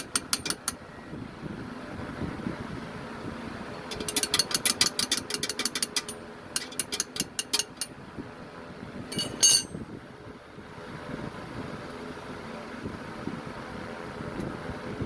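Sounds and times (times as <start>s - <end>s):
ratchet wrench clicking: 0.0s - 0.8s, 3.9s - 7.9s, 9.1s - 9.8s
sharp metal clink: 3.9s - 7.9s, 9.1s - 10.0s.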